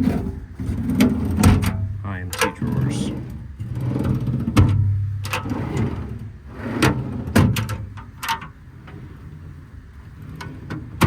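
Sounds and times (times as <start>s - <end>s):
steady low hum: 0.8s - 5.3s.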